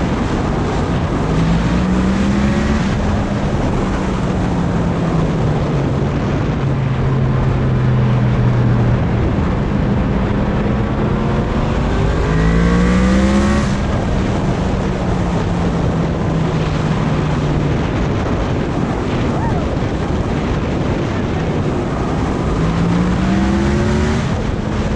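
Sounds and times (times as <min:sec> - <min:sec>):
motorcycle engine revving: 0:00.0 - 0:24.9
wind noise on microphone: 0:00.0 - 0:24.9.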